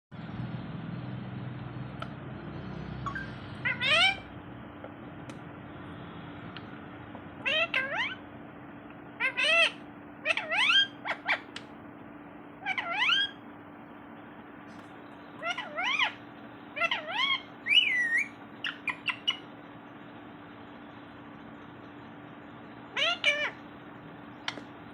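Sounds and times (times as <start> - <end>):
parrot calling: 3.1 - 4.3, 7.4 - 8.2, 9.2 - 11.7, 12.6 - 13.4, 15.3 - 19.5, 22.9 - 23.7.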